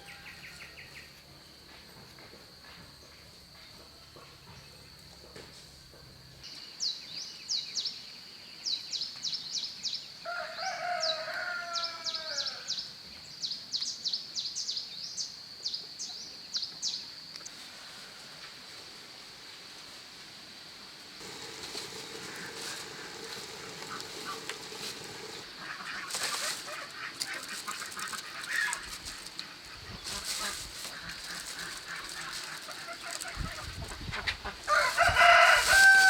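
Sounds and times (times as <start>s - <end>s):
rooster crowing: 0.0s - 1.0s, 10.3s - 12.8s, 34.6s - 36.0s
insects droning: 0.0s - 36.0s.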